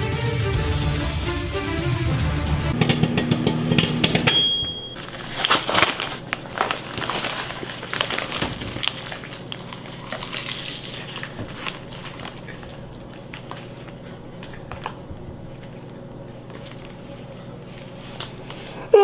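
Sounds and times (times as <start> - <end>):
music: 0.0 - 4.3
crunching crackling clicks: 5.0 - 15.9.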